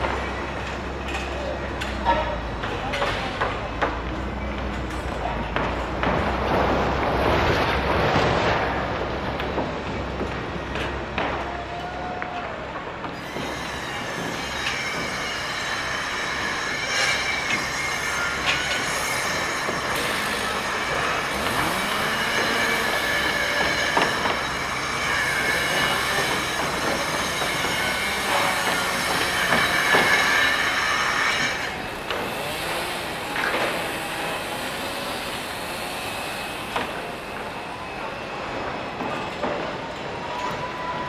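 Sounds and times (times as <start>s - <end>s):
high-pitched metallic squeal: 13.2s - 41.0s.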